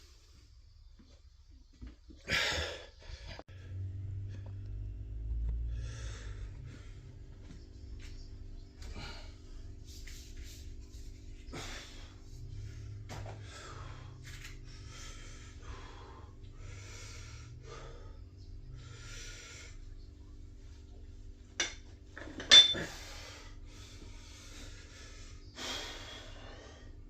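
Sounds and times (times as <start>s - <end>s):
person breathing hard: 5.6s - 19.8s, 22.8s - 27.0s
gym weights clanking: 21.6s - 23.0s.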